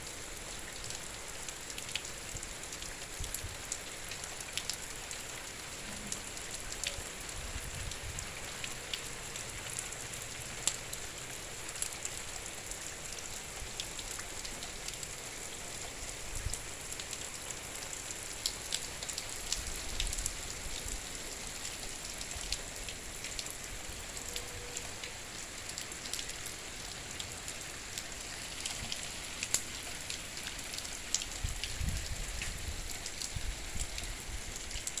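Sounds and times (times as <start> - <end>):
raindrops ticking on surfaces: 0.0 - 35.0.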